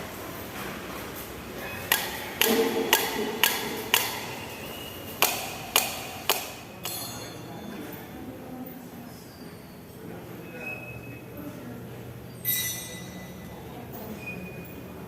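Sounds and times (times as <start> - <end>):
sharp metal knocks: 1.9 - 4.5, 5.2 - 7.3.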